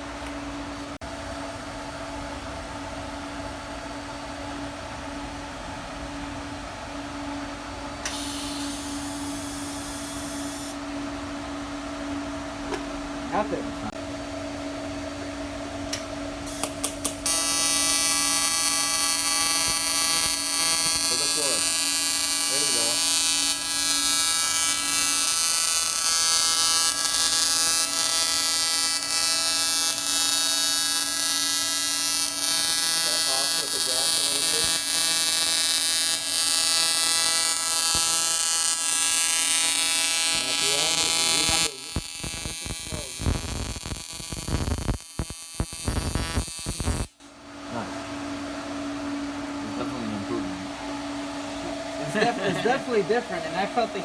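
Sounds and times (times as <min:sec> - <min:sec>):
welder humming: 0:08.0 - 0:10.8, 0:15.9 - 0:47.9
welding torch hissing: 0:08.1 - 0:10.8, 0:16.5 - 0:47.1
click: 0:15.9 - 0:17.2.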